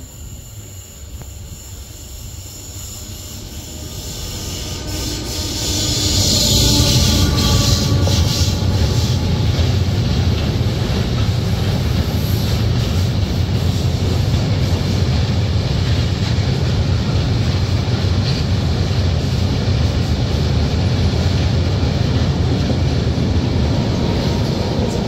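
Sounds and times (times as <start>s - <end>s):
steady whine: 0.0s - 12.0s
freight train rumbling past: 0.0s - 25.0s
wheels squealing on rails: 0.0s - 25.0s.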